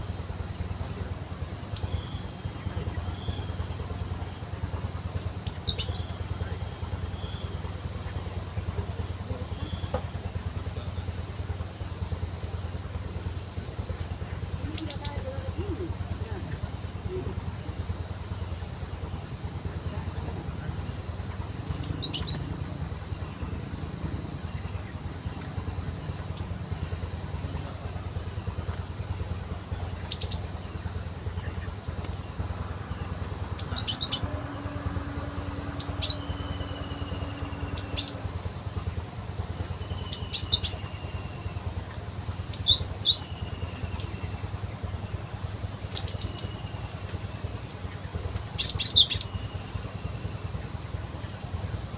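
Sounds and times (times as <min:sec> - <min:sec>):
low hum: 0:00.0 - 0:51.4
insect drone: 0:00.0 - 0:51.9
bird chirping: 0:05.4 - 0:06.6, 0:21.1 - 0:22.5, 0:30.1 - 0:30.6, 0:33.6 - 0:38.2.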